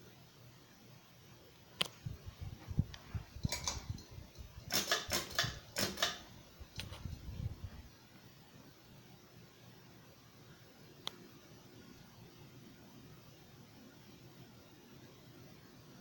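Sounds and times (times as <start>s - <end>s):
light rattles: 2.2s - 7.7s
sharp clicks and knocks: 2.8s - 7.2s.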